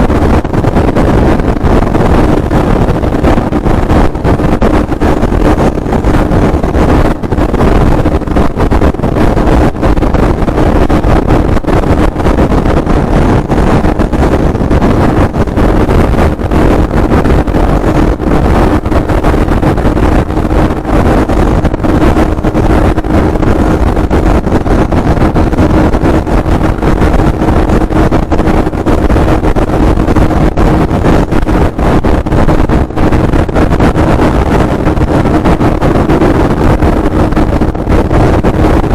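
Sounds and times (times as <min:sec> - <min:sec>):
motorcycle engine running loudly: 0:00.0 - 0:38.9.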